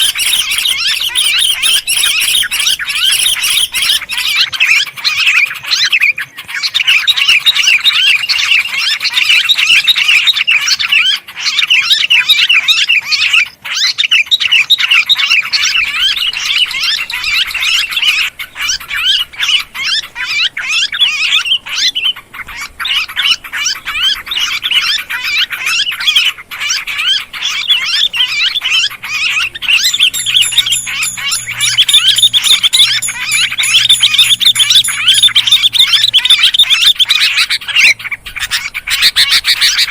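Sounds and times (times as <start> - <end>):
high fast bird trill: 0.0 - 12.2, 22.6 - 39.9
birds chattering and chirping: 0.0 - 39.9.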